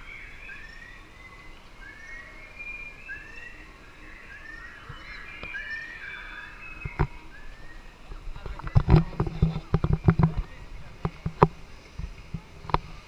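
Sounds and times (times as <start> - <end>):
birds chirping: 0.0 - 13.0
faint moving water: 0.0 - 13.0.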